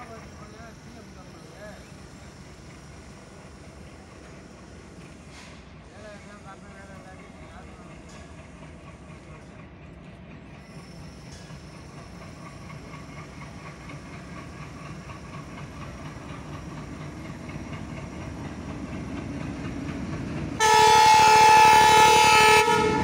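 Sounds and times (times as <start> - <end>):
train rumbling: 0.0 - 23.0
locomotive horn blast: 20.6 - 23.0.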